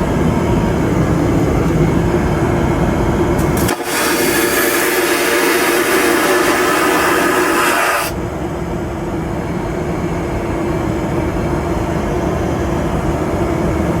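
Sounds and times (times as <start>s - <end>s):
vacuum toilet flushing: 3.4s - 8.2s.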